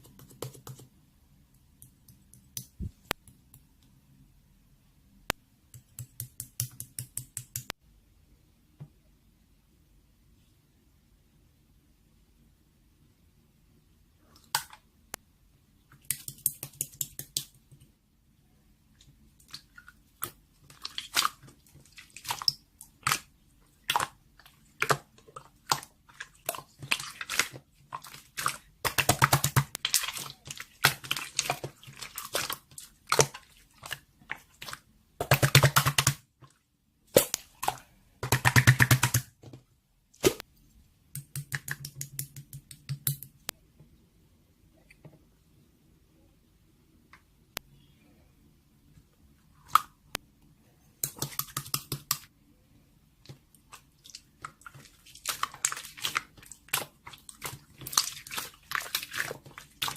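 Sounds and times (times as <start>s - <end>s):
close-up crunching and crackling: 53.6s - 59.9s.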